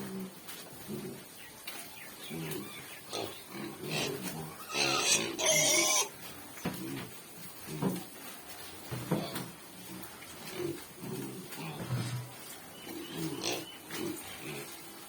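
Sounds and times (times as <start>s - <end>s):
piglets grunting: 0.0s - 1.3s, 2.2s - 6.1s, 9.2s - 14.8s.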